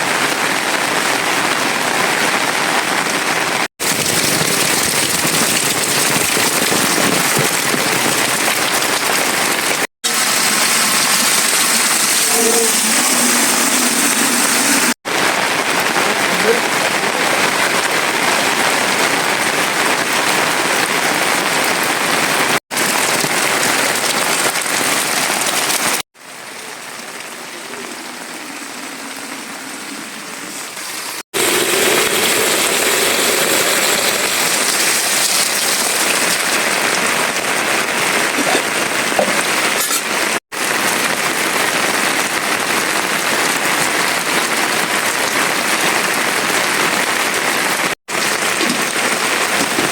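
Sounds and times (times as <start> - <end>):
steady downpour of rain: 0.0 - 49.9.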